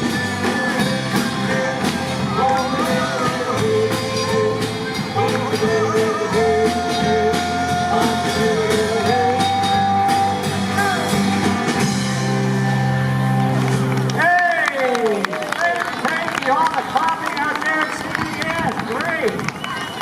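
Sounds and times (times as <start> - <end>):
guitar: 0.0 - 14.4
bass: 0.0 - 20.0.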